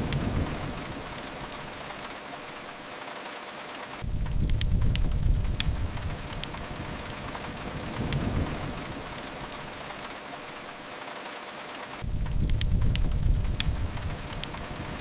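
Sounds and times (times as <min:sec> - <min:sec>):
rain hiss: 0:00.0 - 0:15.0
wood fire crackling: 0:00.0 - 0:15.0
deep low rumble: 0:04.0 - 0:06.9, 0:12.0 - 0:14.6.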